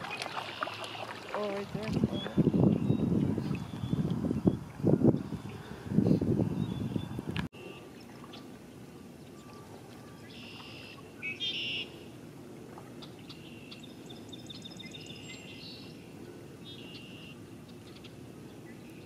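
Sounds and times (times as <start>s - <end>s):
songbird calls and trills: 2.0s - 5.8s, 9.2s - 12.2s, 13.0s - 19.0s.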